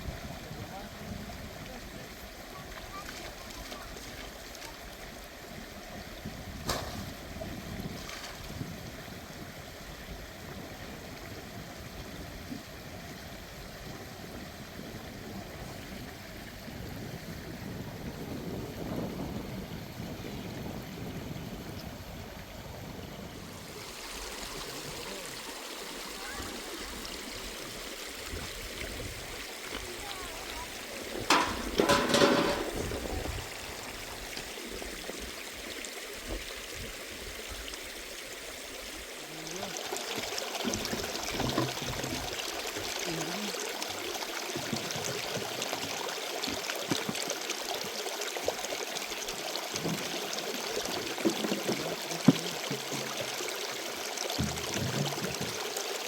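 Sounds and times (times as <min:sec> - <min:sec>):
water trickling: 0:23.4 - 0:56.0.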